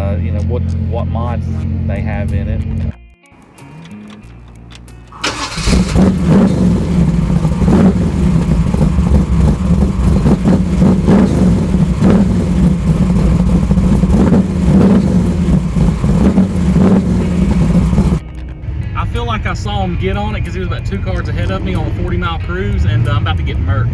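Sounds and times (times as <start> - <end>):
drag car engine at high revs: 4.8 - 18.2.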